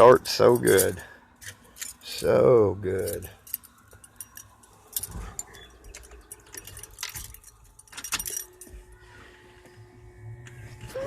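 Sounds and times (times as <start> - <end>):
keys jangling: 0.3 - 2.1, 3.0 - 8.9.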